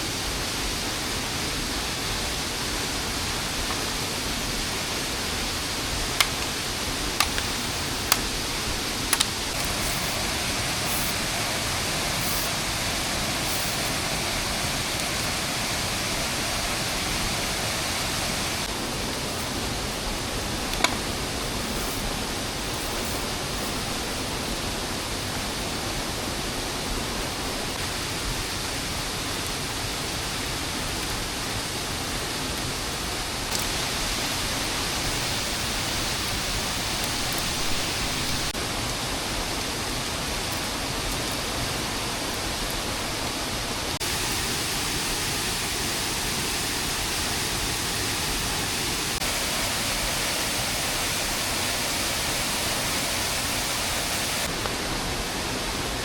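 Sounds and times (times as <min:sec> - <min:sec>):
heavy rain hiss: 0:00.0 - 0:56.0.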